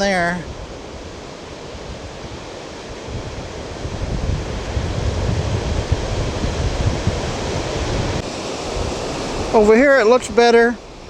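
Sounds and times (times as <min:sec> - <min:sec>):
lake surf: 0:00.0 - 0:11.0
wind buffeting microphone: 0:00.0 - 0:11.0.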